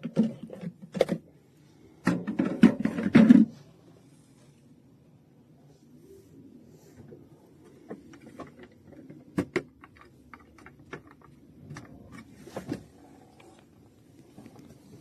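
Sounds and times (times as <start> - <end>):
objects clicking and knocking: 2.0 - 3.6, 7.6 - 12.8.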